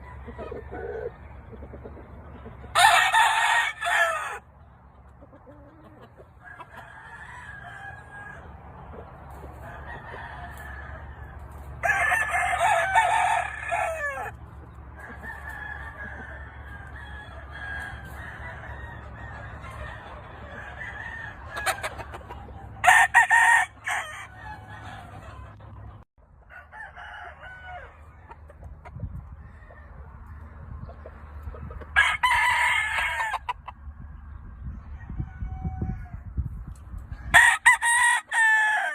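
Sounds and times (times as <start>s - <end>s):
chickens clucking: 0.0s - 37.3s
rooster crowing: 2.7s - 4.4s, 6.4s - 8.5s, 9.6s - 14.4s, 15.0s - 22.2s, 22.8s - 25.6s, 26.5s - 28.3s, 31.9s - 33.5s, 34.9s - 36.3s, 37.2s - 38.9s.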